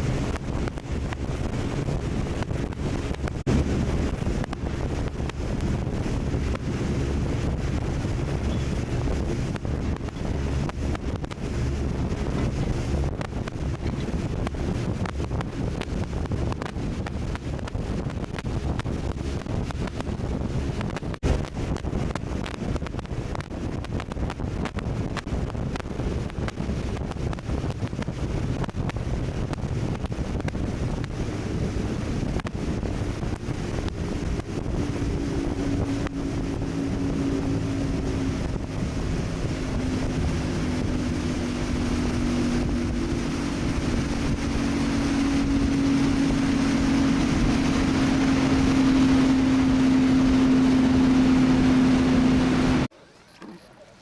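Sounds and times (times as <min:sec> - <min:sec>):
wind buffeting microphone: 0:00.0 - 0:52.9
speedboat engine droning: 0:00.0 - 0:54.0
water rushing against hull: 0:00.0 - 0:54.0.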